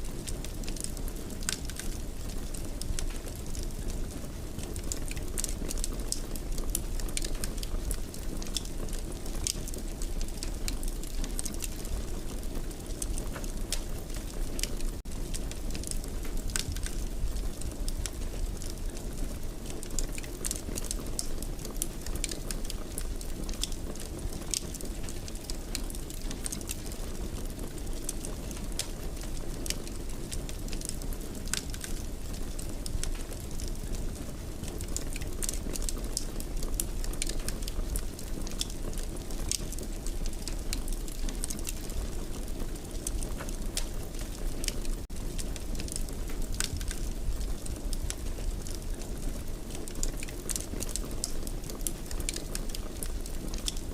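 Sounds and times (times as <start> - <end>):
low rumble of flames: 0.0 - 53.9
wood fire snapping and popping: 0.1 - 53.9.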